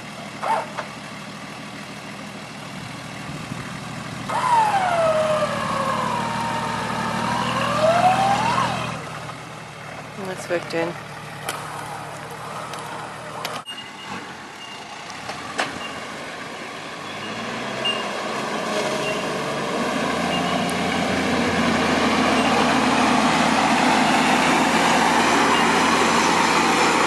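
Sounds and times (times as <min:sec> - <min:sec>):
vehicle engine running under load: 0:00.0 - 0:27.0.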